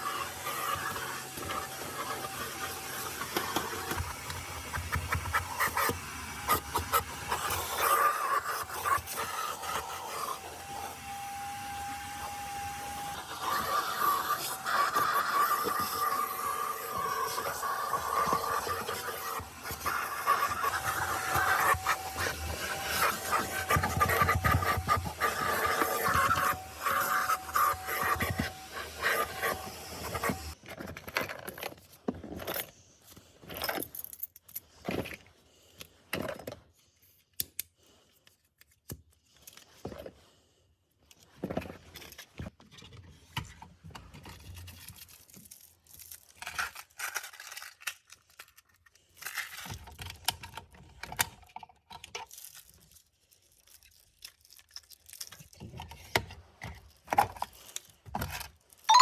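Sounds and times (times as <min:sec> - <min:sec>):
scraping and rubbing: 0:12.9 - 0:30.6.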